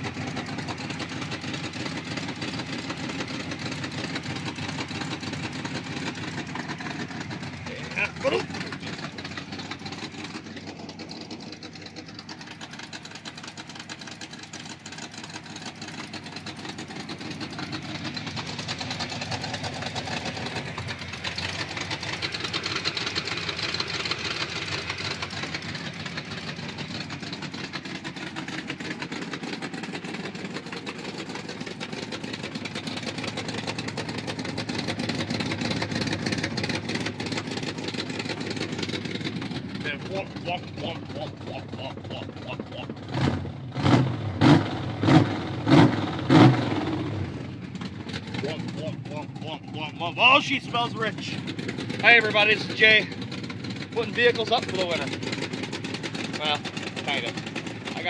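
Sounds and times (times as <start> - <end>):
engine idling with rapid tick: 0.0 - 58.0.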